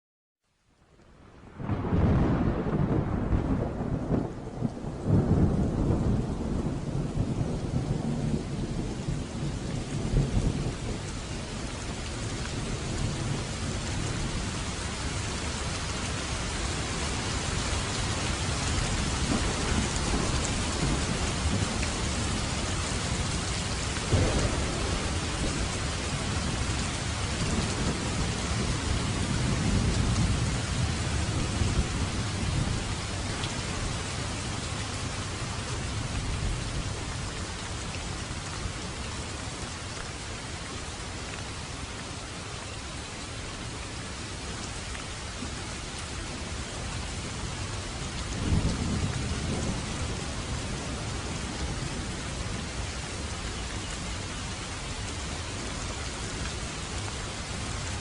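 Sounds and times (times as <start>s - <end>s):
heavy rain hiss: 1.1s - 58.0s
rolling thunder: 1.6s - 11.6s, 18.6s - 33.2s, 48.0s - 52.7s.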